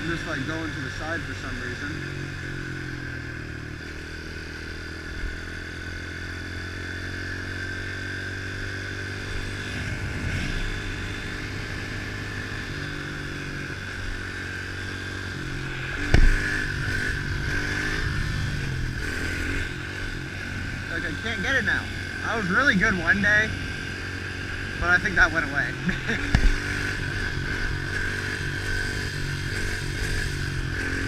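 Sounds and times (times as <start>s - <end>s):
motorbike engine running: 0.0s - 31.0s.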